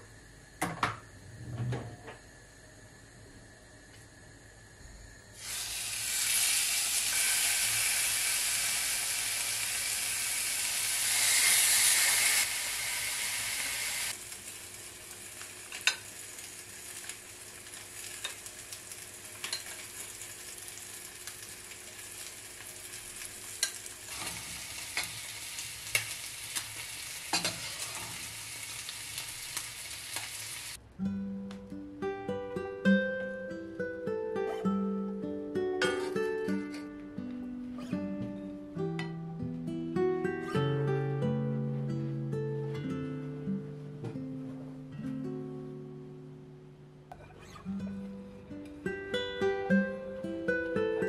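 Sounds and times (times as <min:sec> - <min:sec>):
food sizzling in frying pan: 0:05.4 - 0:30.8.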